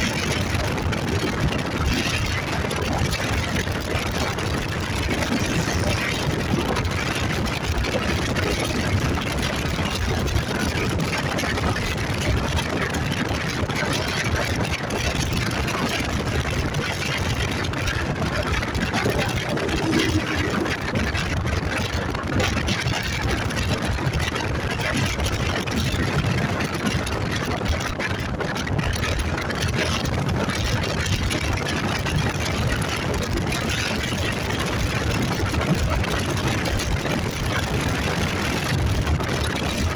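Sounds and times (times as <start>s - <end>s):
rush of wind: 0.0s - 39.9s
road noise: 2.0s - 9.0s, 15.8s - 23.7s
motorcycle engine running: 17.0s - 22.0s.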